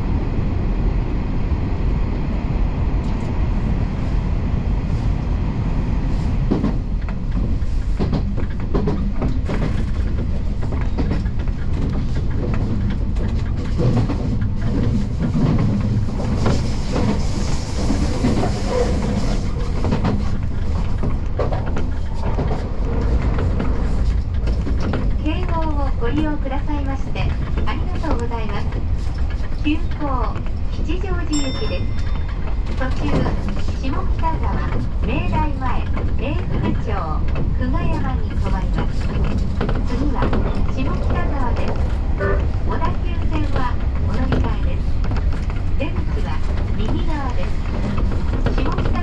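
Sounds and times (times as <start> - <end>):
train rumble: 0.0 - 49.0
wheels clicking over rail joints: 6.5 - 49.0.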